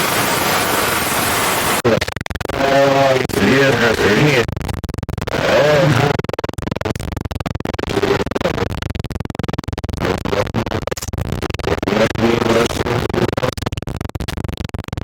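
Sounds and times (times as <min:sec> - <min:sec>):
tv static crackling hiss: 0:00.0 - 0:01.8
warbling tones: 0:00.0 - 0:01.8.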